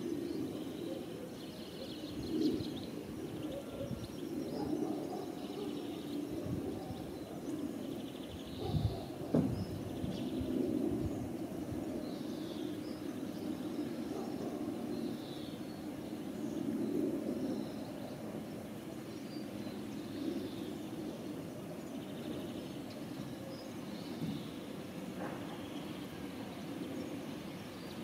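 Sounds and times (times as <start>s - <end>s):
small birds chirping: 0.0s - 28.0s
brief thump: 9.3s - 9.6s.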